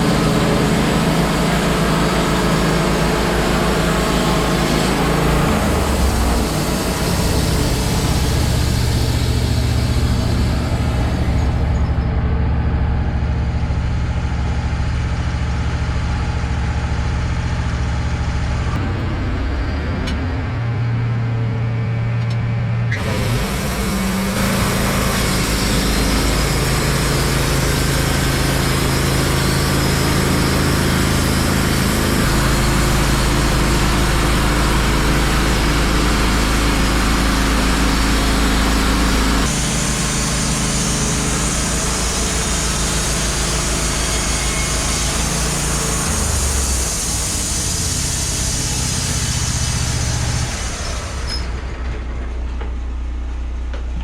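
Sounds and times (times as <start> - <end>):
sawmill engine droning: 0.0 - 54.0
band saw blade cutting log: 0.4 - 11.7, 22.9 - 51.5.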